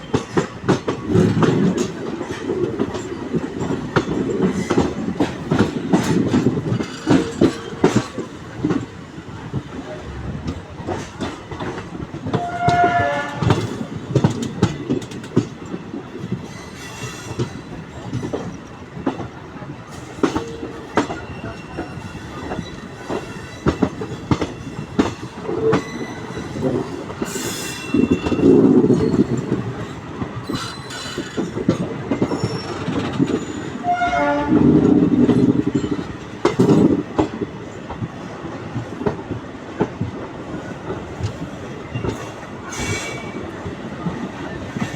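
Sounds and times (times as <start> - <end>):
train rumbling: 0.0 - 44.9
train wheels clattering: 0.0 - 44.9.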